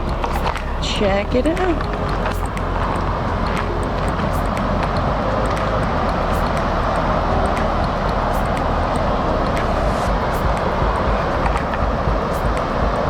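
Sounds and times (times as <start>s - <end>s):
river water pouring over dam: 0.0s - 13.0s.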